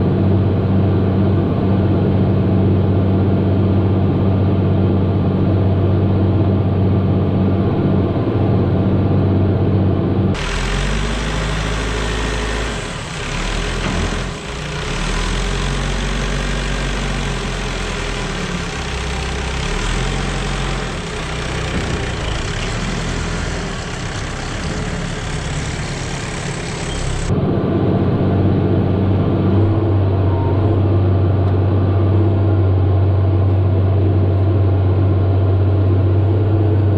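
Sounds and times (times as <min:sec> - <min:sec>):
tractor engine running: 0:09.1 - 0:30.0.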